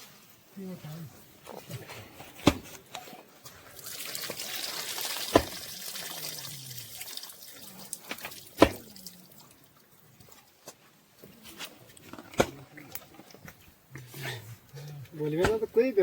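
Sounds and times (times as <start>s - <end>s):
water pouring and splashing: 3.4s - 10.7s.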